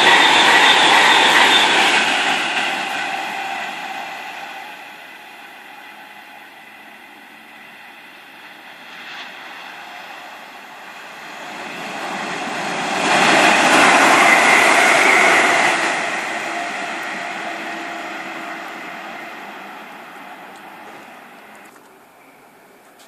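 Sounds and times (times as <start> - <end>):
train passing at speed: 0.0 - 23.0
faint high whine: 3.0 - 23.0.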